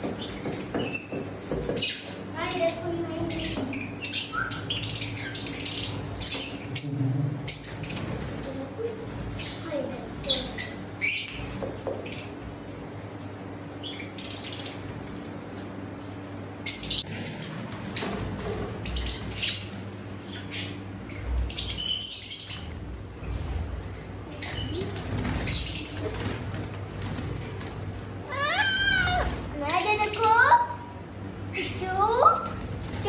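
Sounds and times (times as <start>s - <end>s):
birds flapping wings: 0.0s - 10.8s, 17.0s - 21.6s, 22.5s - 30.6s, 31.7s - 33.0s
high bird calls: 0.2s - 12.4s.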